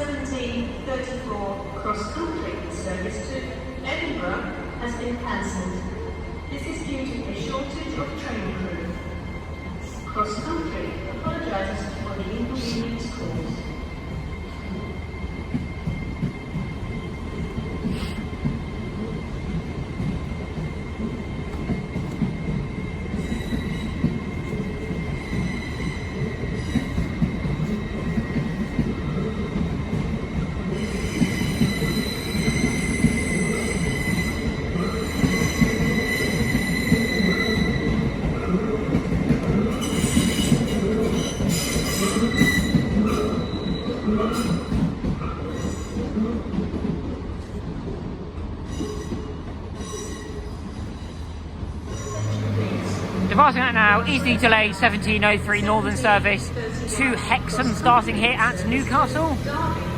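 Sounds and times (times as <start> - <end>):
train low rumble: 0.0 - 59.9
train wheels squealing on rails: 11.8 - 46.2, 48.5 - 53.2.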